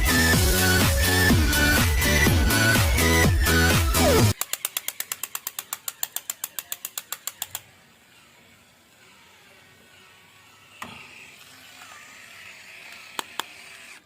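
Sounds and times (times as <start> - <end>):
rapid even clicks: 4.4 - 7.7.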